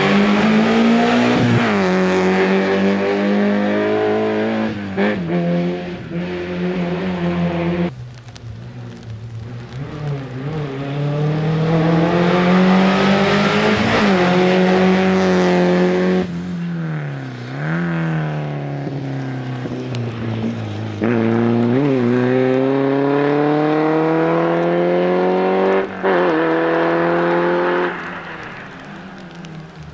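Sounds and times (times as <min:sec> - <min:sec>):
race car engine accelerating: 0:00.0 - 0:07.9, 0:09.6 - 0:16.4, 0:21.0 - 0:28.2.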